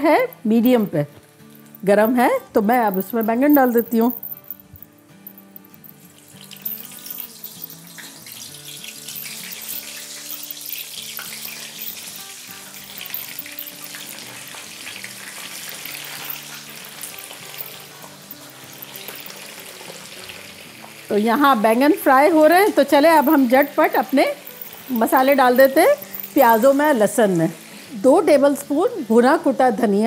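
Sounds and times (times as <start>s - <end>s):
background music: 0.0s - 30.0s
eggplants sizzling in hot oil: 7.3s - 30.0s.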